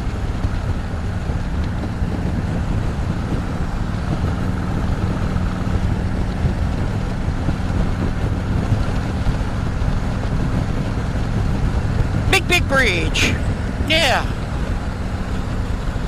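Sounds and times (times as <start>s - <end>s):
wind noise on microphone: 0.0s - 12.4s
motorcycle engine cruising: 0.0s - 16.0s.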